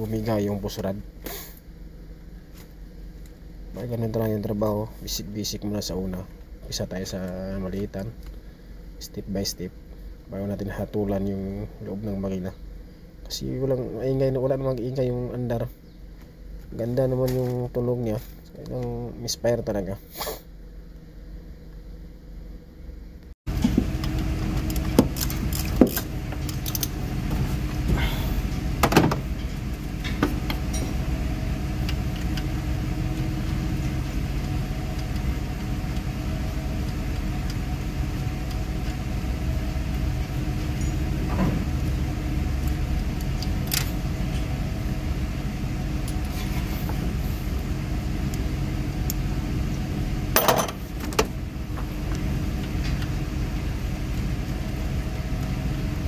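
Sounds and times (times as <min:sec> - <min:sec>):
car engine idling: 0:23.5 - 0:56.0.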